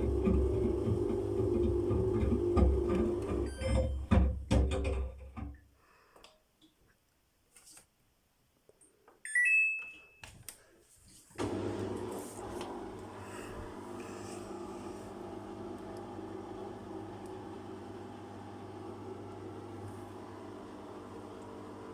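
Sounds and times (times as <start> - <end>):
washing machine humming: 0.0 - 5.1, 11.4 - 21.9.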